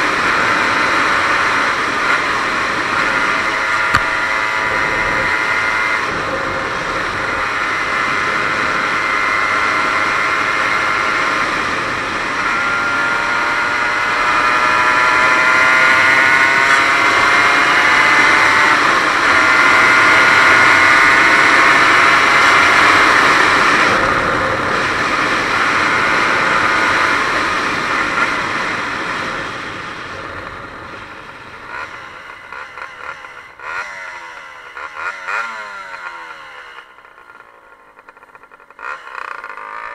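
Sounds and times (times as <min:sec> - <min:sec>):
rushing wind noise: 0:00.0 - 0:31.8
motorcycle engine running hard: 0:00.0 - 0:39.9.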